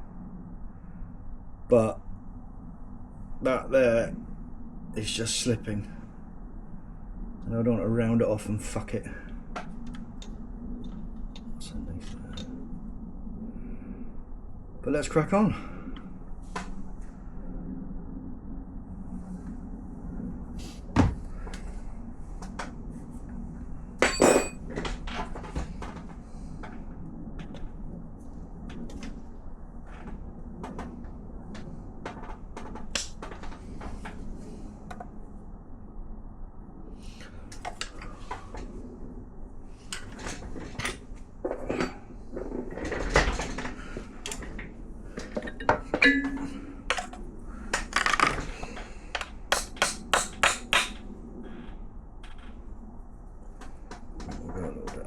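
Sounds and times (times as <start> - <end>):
metal tools clinking on engine: 24.0 - 24.6, 45.2 - 47.2
ringing metal clink: 24.0 - 24.6, 46.0 - 46.6.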